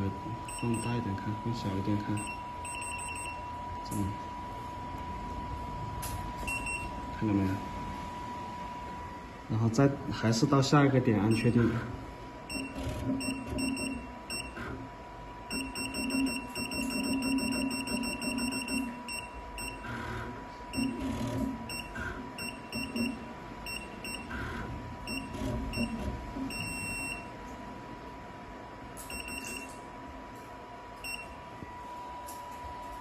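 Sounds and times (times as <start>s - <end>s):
control panel beeps: 0.5s - 4.1s, 6.4s - 7.0s, 11.3s - 11.6s, 12.5s - 14.6s, 15.5s - 19.9s, 20.7s - 21.0s, 21.7s - 24.4s, 25.1s - 27.3s, 29.0s - 29.8s, 31.0s - 31.4s.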